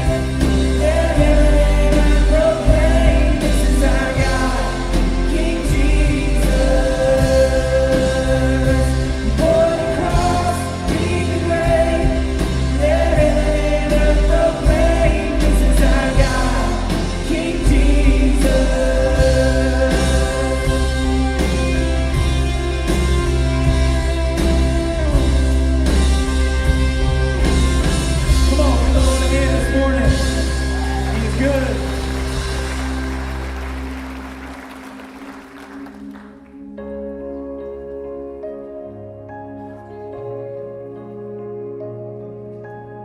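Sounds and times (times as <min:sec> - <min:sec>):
voices singing: 0:00.0 - 0:22.4
live band playing: 0:00.0 - 0:43.0.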